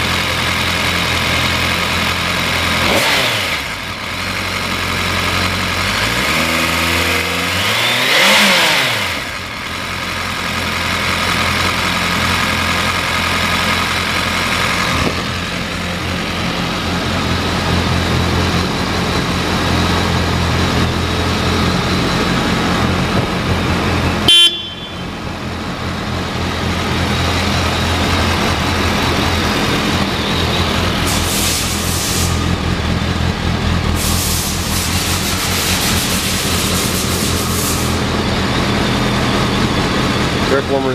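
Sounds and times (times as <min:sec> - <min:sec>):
motorcycle engine idling: 0:00.0 - 0:06.0, 0:09.2 - 0:40.9
short horn beep: 0:24.2 - 0:25.2.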